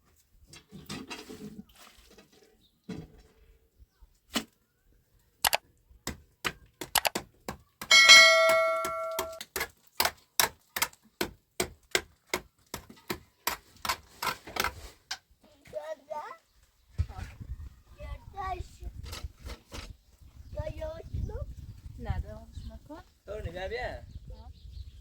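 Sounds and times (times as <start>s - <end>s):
loud metallic clang: 7.9s - 9.4s
sharp knocks: 7.9s - 9.4s.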